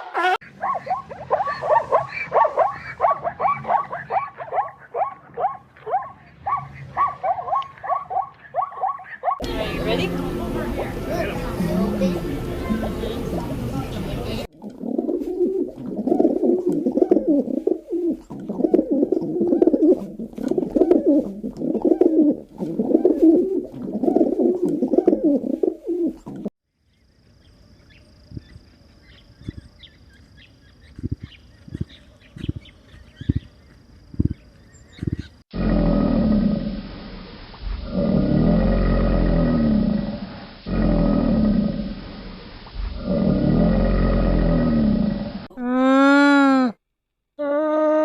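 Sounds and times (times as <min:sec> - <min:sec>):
low animal calls: 0:14.6 - 0:26.4, 0:35.0 - 0:46.4.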